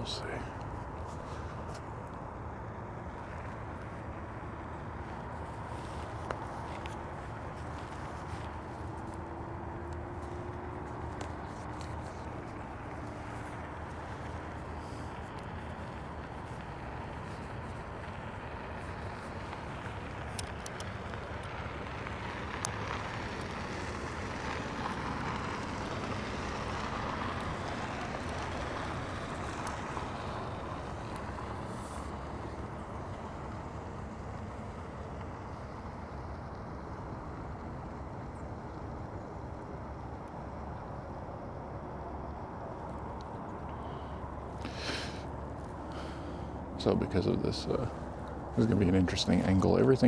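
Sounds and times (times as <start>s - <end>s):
road traffic noise: 0.0s - 50.0s
vehicle passing: 3.6s - 32.6s, 43.1s - 50.0s.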